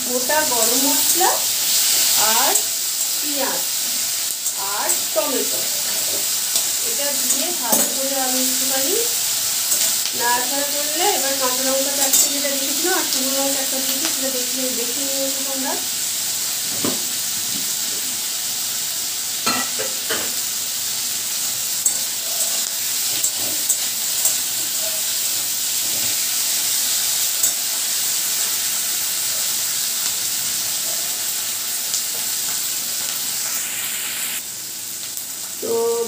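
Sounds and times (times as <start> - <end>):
onion sizzling in hot oil: 0.0 - 36.0
metal spatula scraping a pan: 4.4 - 8.0, 21.8 - 26.2.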